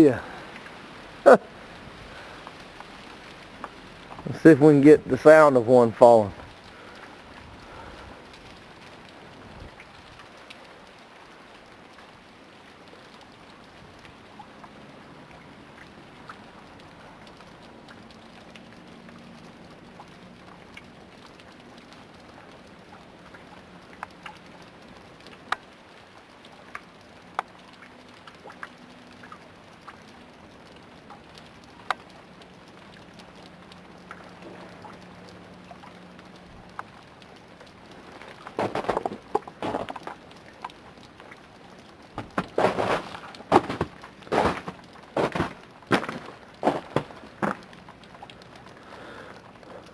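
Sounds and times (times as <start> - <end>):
freezing rain pattering: 0.0 - 49.9
icy branches snapping and cracking: 36.7 - 41.2, 41.9 - 48.7.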